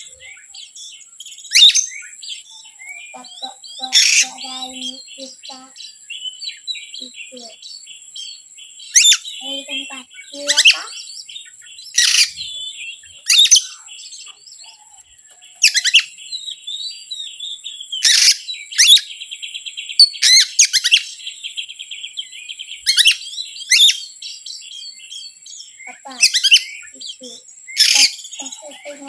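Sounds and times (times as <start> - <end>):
bird chirping phrases: 0.0 - 29.0.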